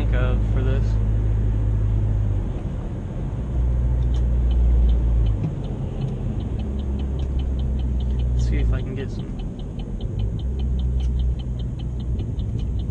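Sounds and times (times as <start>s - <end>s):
car engine droning in cabin: 0.0s - 12.9s
faint rapid ticking: 4.1s - 12.9s.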